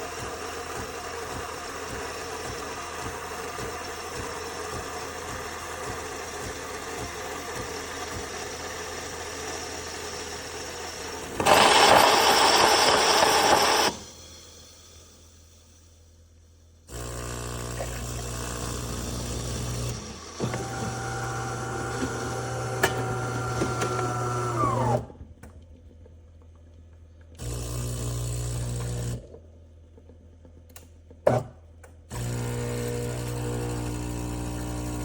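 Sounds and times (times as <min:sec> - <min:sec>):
espresso machine pump hum: 0:00.0 - 0:14.4, 0:16.9 - 0:24.9, 0:32.2 - 0:35.0.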